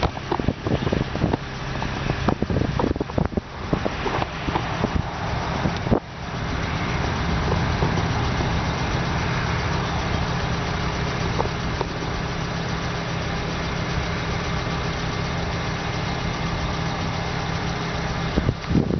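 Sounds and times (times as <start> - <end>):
low hum: 0.0 - 18.9
steady engine drone: 0.0 - 18.9.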